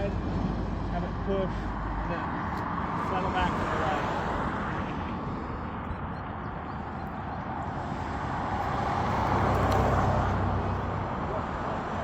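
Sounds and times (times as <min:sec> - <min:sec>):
road traffic noise: 0:00.0 - 0:12.0
vehicle rumble passing: 0:00.0 - 0:12.0.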